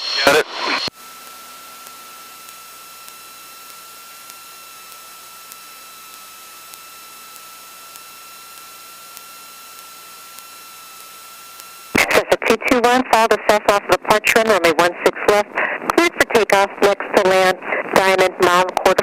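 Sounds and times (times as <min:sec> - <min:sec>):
constant high-pitched whine: 0:00.0 - 0:19.0
electrical hiss on radio feed: 0:00.0 - 0:19.0
faint regular ticks: 0:01.2 - 0:11.8.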